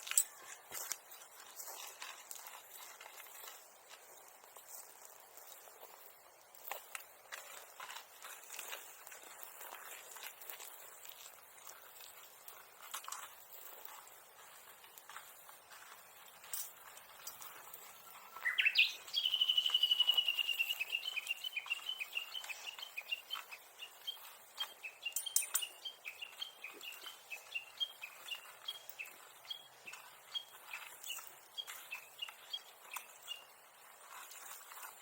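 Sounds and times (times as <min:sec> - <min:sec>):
bush warbler singing: 0:17.9 - 0:33.9.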